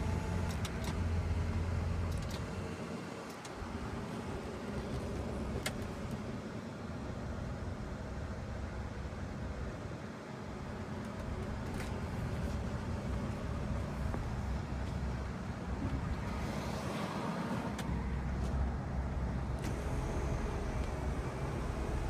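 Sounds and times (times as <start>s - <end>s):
road noise: 10.5s - 22.0s
car engine rumbling: 10.6s - 22.0s.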